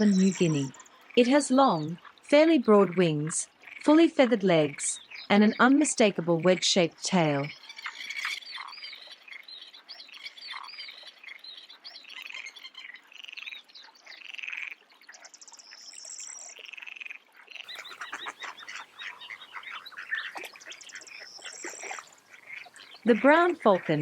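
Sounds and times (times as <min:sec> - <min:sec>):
dense bird chattering: 0:00.0 - 0:02.0, 0:17.6 - 0:24.0
birds chirping: 0:00.0 - 0:16.6, 0:17.6 - 0:24.0.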